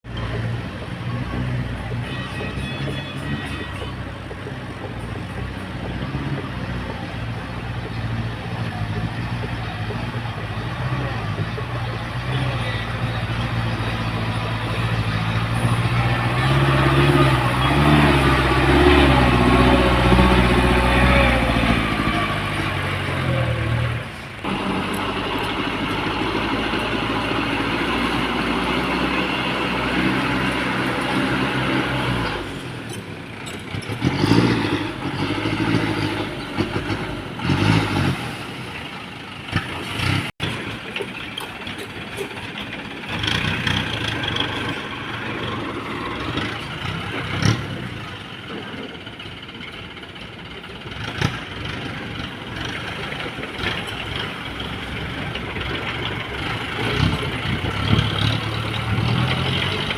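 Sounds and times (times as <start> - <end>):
dump truck engine running: 0.0 - 59.9.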